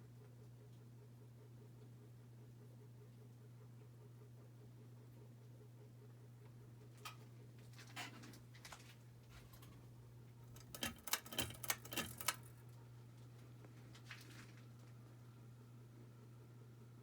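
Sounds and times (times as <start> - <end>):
ceiling fan motor hum: 0.0 - 17.0
sharp clicks and rattles: 10.5 - 12.6.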